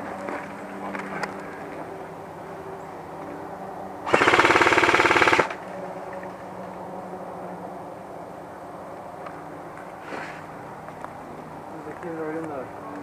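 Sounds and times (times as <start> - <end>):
airsoft gun full-auto burst: 4.1 - 5.6.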